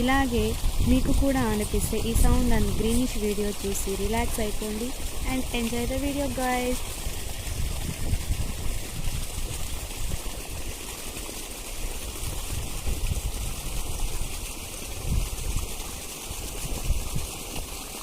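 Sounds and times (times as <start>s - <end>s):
irrigation water rushing: 0.0s - 18.0s.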